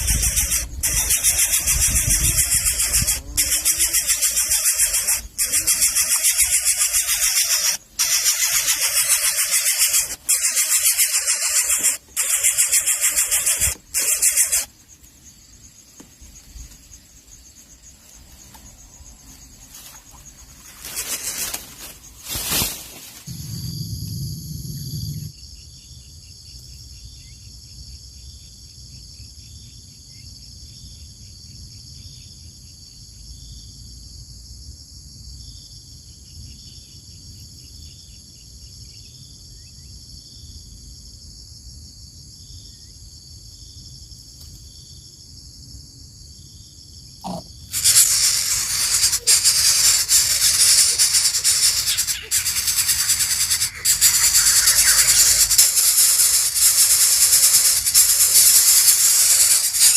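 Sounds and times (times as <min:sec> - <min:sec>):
high insect trilling: 0:00.0 - 0:15.0, 0:47.2 - 0:59.9
loud rattling hissing noise: 0:00.0 - 0:15.0, 0:20.5 - 0:23.6, 0:47.7 - 0:59.9
soft repeating chirp: 0:47.8 - 0:59.9.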